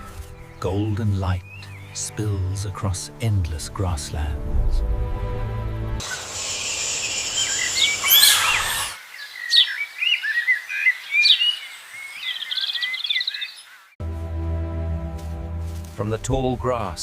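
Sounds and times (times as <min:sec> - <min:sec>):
birds chirping and whistling: 0:06.0 - 0:13.8.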